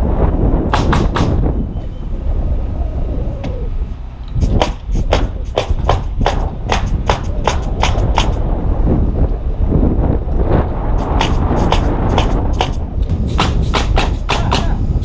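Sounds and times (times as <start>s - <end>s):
wind rumbling on microphone: 0.0s - 15.0s
hammer driving nails: 0.7s - 1.4s, 4.4s - 8.4s, 11.0s - 14.8s.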